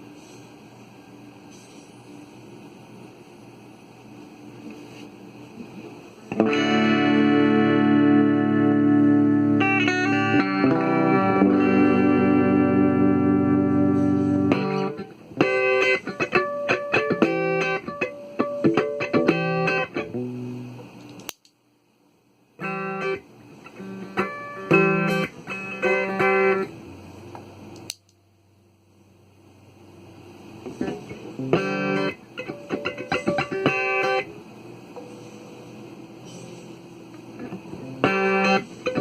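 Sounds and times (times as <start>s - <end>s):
electric guitar playing: 6.3s - 21.0s, 22.6s - 27.8s, 30.6s - 35.3s, 37.2s - 39.0s
sharp click: 21.0s - 21.6s.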